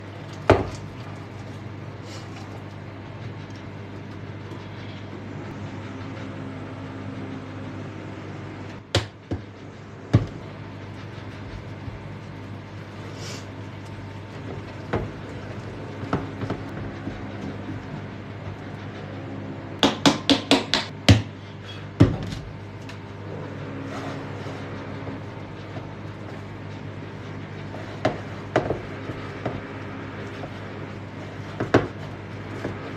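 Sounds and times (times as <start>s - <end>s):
steady background hum: 0.0s - 32.9s
kitchen knocks and clatters: 0.3s - 1.0s, 8.9s - 10.4s, 14.4s - 18.0s, 28.0s - 30.6s, 31.4s - 32.9s.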